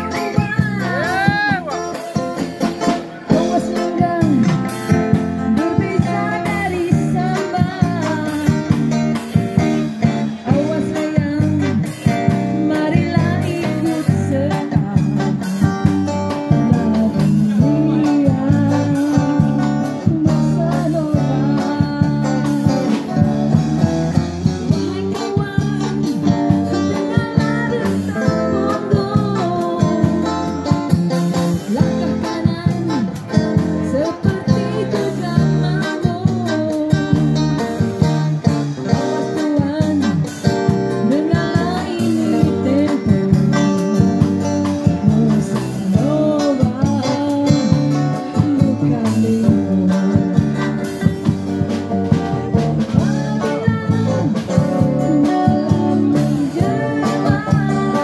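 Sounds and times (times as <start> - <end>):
woman singing: 0.0 - 2.1, 3.3 - 58.0
guitar accompaniment: 0.0 - 58.0.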